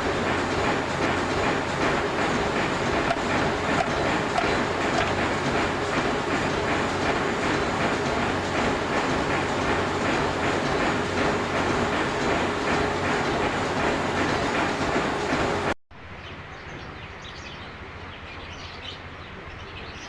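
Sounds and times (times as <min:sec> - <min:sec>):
metal lathe running: 0:00.0 - 0:15.8.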